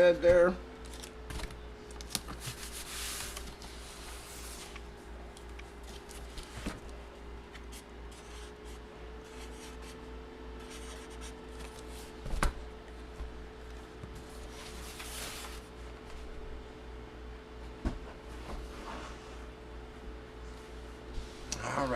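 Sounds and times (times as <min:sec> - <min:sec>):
electrical hum: 0:00.0 - 0:21.9
paper and packaging rustling: 0:00.8 - 0:06.8, 0:14.3 - 0:15.7.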